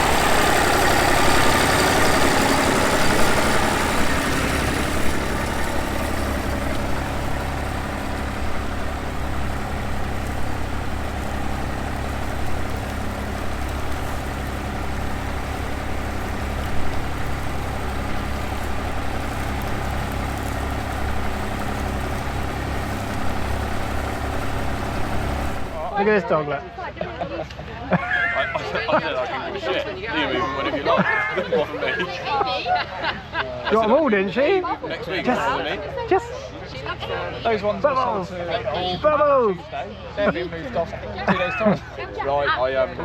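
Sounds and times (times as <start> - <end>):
vehicle engine idling: 0.0 - 26.9.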